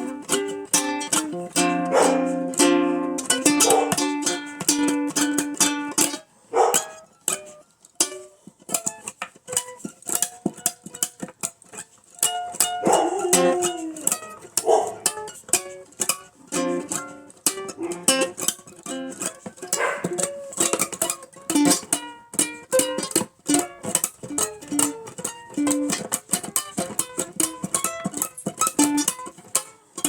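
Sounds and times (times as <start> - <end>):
ukulele and guitar blues: 0.0 - 30.0
voice-like yelps: 12.8 - 14.1.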